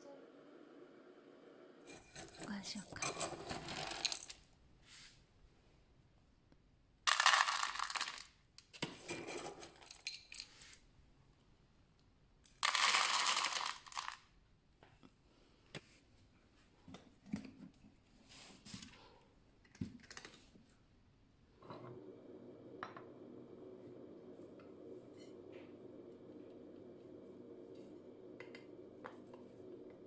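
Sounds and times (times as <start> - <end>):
kibble poured into a bowl: 3.3 - 4.4, 7.1 - 8.4, 12.5 - 14.3.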